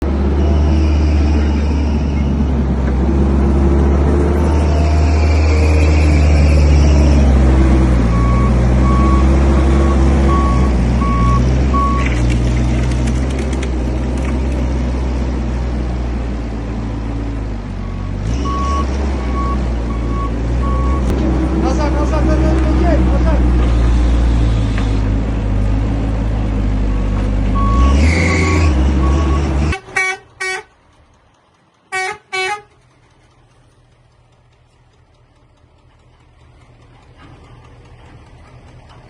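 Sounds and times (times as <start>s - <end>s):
heavy truck engines droning: 0.0s - 39.0s
reversing alarm beeping: 8.1s - 12.0s, 17.8s - 21.1s, 27.6s - 29.5s.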